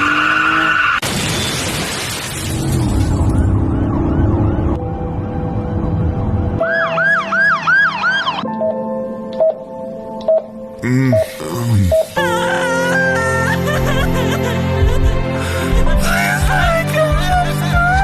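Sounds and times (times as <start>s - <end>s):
siren yelping: 3.3s - 4.8s, 6.6s - 8.8s.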